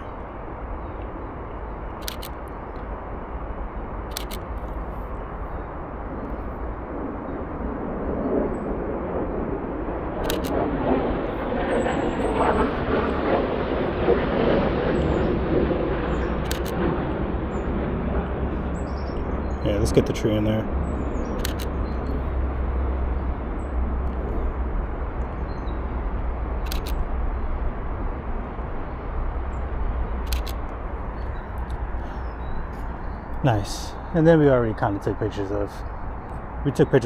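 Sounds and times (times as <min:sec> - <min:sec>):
distant engine rumble: 0:00.0 - 0:37.0
camera shutter clicks: 0:02.0 - 0:02.5, 0:04.1 - 0:04.7, 0:10.2 - 0:10.6, 0:16.4 - 0:16.8, 0:21.4 - 0:21.8, 0:26.6 - 0:27.1, 0:30.3 - 0:30.6.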